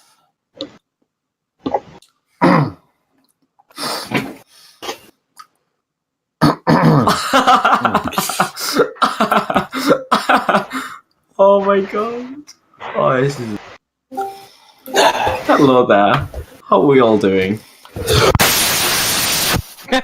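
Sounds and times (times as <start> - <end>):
man coughing and retching: 2.4 - 2.9, 6.4 - 11.0, 14.9 - 15.8.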